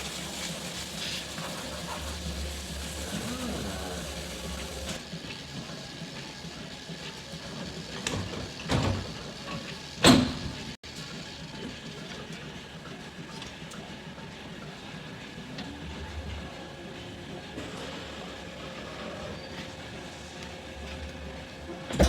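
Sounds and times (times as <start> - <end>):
machinery hum: 0.1 - 5.0.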